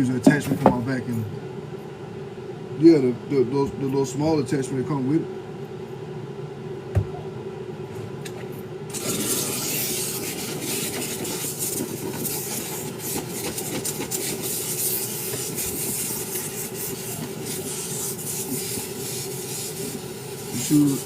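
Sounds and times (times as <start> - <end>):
brush scrubbing strokes: 9.0 - 21.0.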